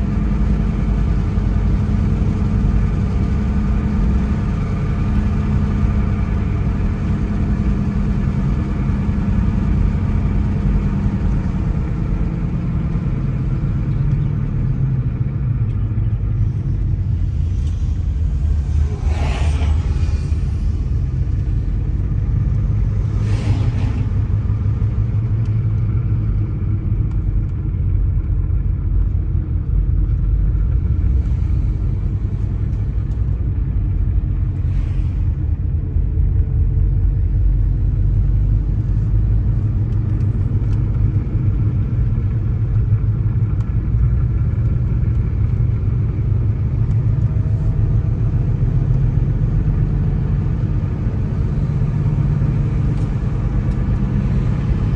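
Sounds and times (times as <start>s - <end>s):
car road and engine rumble: 0.0s - 54.9s
brief swishes: 18.5s - 20.6s.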